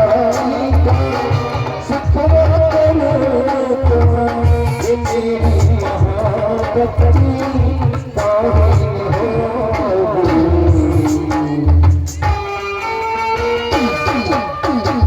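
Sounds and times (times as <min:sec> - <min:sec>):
held instrumental melody: 0:00.0 - 0:15.0
steady drum beat: 0:00.0 - 0:15.0.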